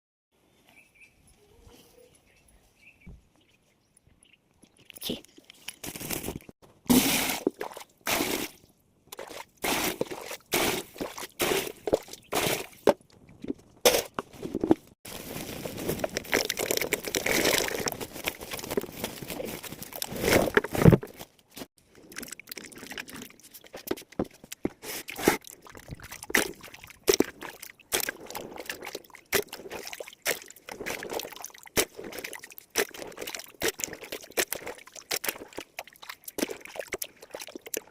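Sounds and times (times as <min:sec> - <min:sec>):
potatoes knocking and scrubbing: 0:05.7 - 0:37.9
water pouring: 0:06.9 - 0:12.7, 0:15.5 - 0:18.9, 0:21.9 - 0:24.3, 0:25.0 - 0:37.9.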